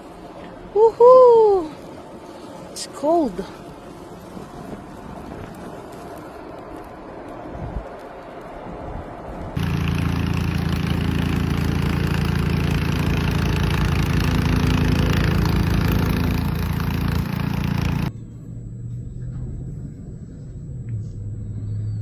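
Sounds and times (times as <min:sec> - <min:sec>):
engine running: 0:09.6 - 0:21.9
low hum: 0:09.6 - 0:22.0.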